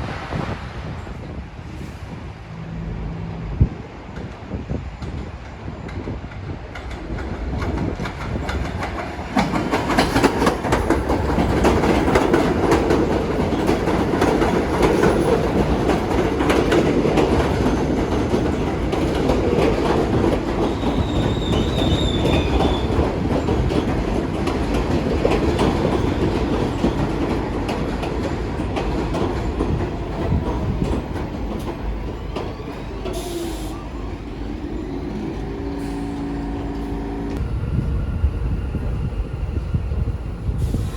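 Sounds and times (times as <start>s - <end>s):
train wheels clattering: 4.2s - 33.8s
high wheel squeal: 20.7s - 23.0s.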